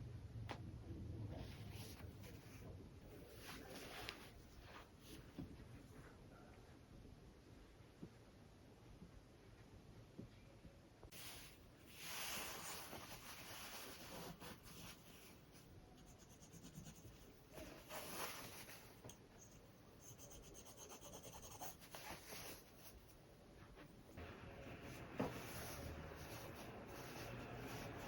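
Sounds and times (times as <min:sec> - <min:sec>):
scratching and rubbing on fabric: 0:01.4 - 0:05.3, 0:11.1 - 0:28.0.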